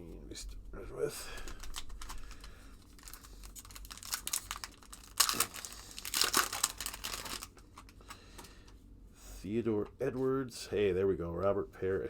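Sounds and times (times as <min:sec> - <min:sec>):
wrapper crinkling and tearing: 0:01.3 - 0:08.1.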